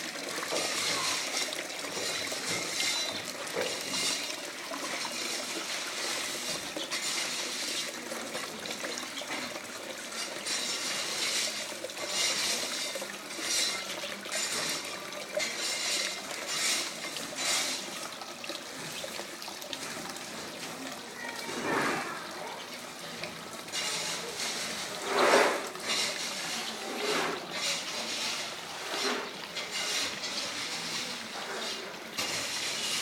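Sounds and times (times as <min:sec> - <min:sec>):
water splashing and trickling: 0:00.0 - 0:33.0.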